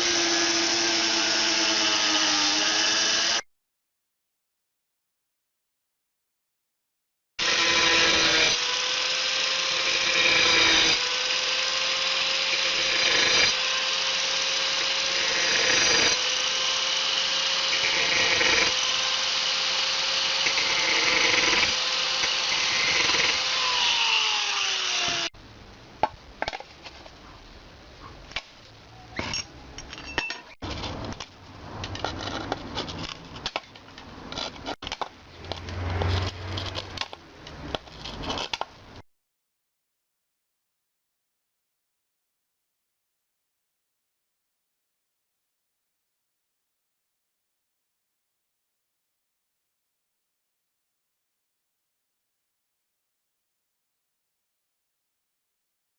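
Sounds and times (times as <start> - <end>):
angle grinder cutting tile: 0.0 - 3.5, 7.4 - 25.3
scraping: 28.1 - 38.7.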